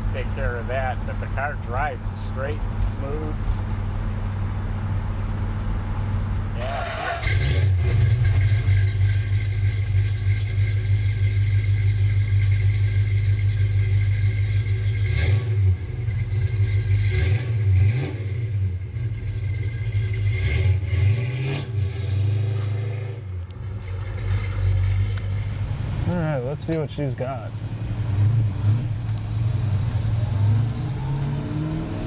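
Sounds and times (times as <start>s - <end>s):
car engine from inside cabin: 6.6s - 32.0s.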